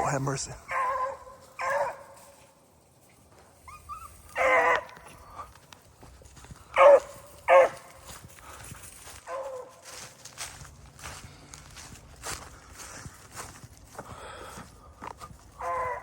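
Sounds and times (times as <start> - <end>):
dogs yelping: 0.7 - 2.2, 3.6 - 5.5, 6.8 - 7.9, 15.5 - 16.0.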